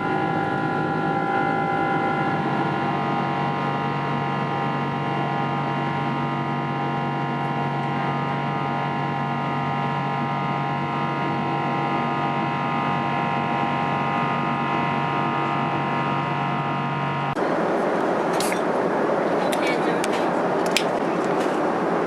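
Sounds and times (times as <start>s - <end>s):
jet engines droning in cabin: 0.0s - 22.0s.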